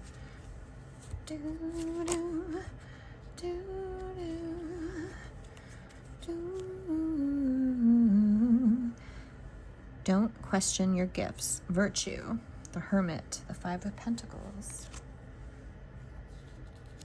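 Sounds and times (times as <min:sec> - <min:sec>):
woman humming a tune: 0:03.4 - 0:05.2, 0:06.2 - 0:09.0.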